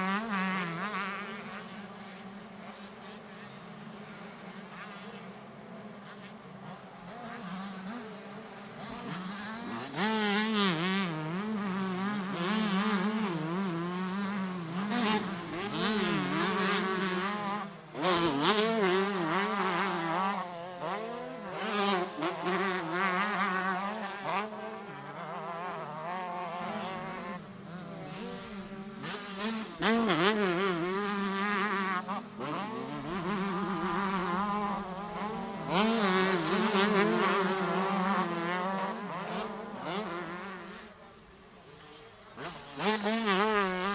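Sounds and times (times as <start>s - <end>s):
motocross bikes revving: 8.7s - 40.9s, 41.8s - 43.9s.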